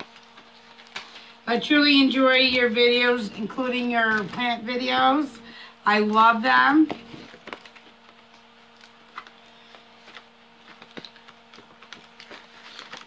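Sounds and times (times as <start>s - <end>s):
package clicks and rustles: 0.0s - 1.4s, 6.9s - 13.0s
low electrical hum: 0.0s - 13.0s.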